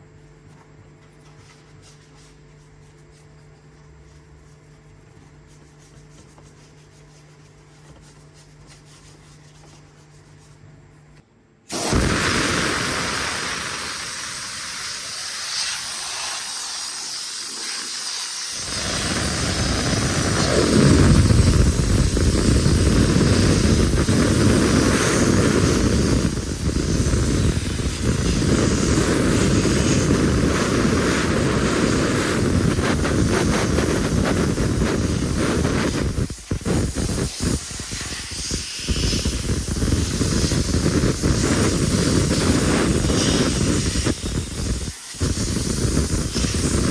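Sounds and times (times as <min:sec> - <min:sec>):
pressurised water spray hissing: 0:11.7 - 0:46.9.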